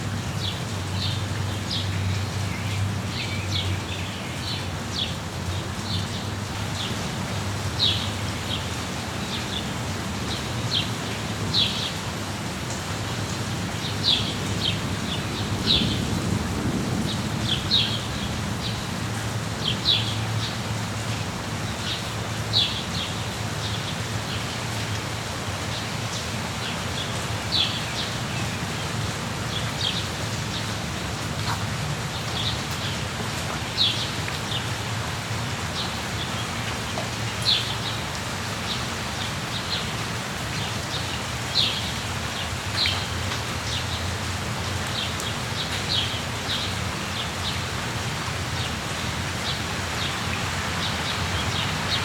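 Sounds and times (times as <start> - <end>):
steady rainfall: 0.0 - 52.0
songbirds chirping: 25.7 - 44.1, 44.7 - 52.0.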